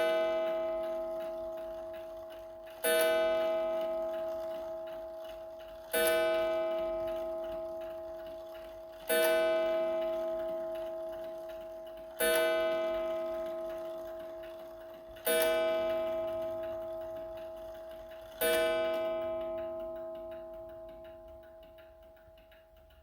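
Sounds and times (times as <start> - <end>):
mantel clock striking: 0.0 - 23.0.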